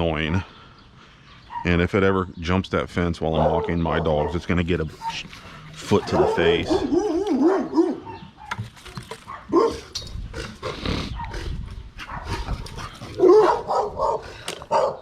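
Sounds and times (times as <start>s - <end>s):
dog barking: 3.3s - 5.2s, 5.9s - 8.6s, 9.3s - 9.9s, 12.0s - 15.0s.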